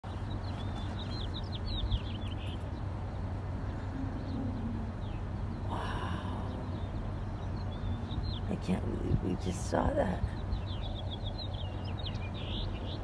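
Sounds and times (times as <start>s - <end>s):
small bird chirping: 0.1s - 13.0s
steady low rumble: 0.1s - 13.0s.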